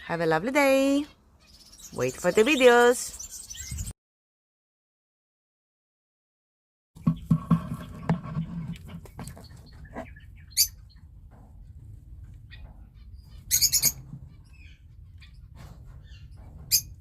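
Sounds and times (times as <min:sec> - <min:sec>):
knocks: 0:07.0 - 0:08.4
parrots calling: 0:12.5 - 0:17.0.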